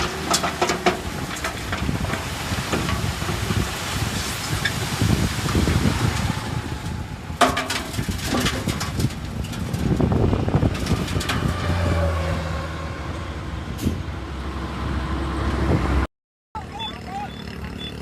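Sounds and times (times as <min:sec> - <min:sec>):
heavy machinery diesel rumble: 0:00.0 - 0:11.6.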